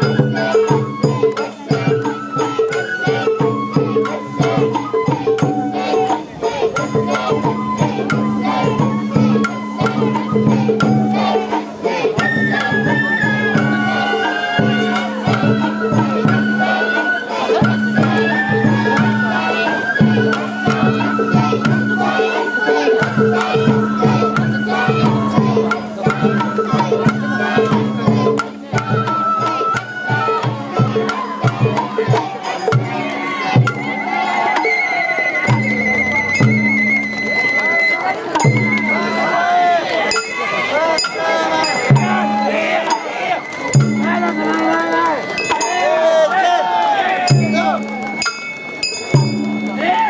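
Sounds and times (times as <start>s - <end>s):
taiko drum beat: 0.0s - 34.3s, 38.3s - 39.2s, 41.7s - 43.1s, 43.7s - 44.8s, 47.3s - 48.0s, 49.2s - 49.9s
bamboo flute melody: 0.0s - 50.0s
taiko drum strikes: 23.0s - 29.6s.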